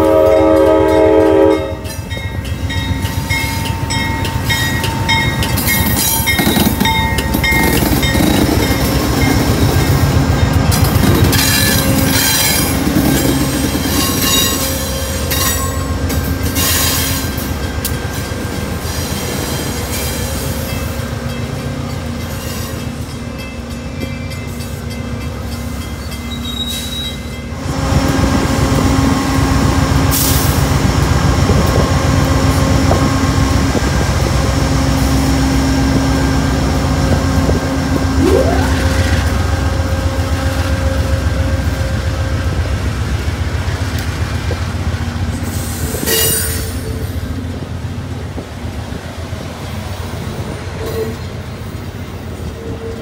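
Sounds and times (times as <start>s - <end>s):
diesel locomotive engine: 0.0s - 53.0s
wheels rumbling on rail: 0.0s - 53.0s.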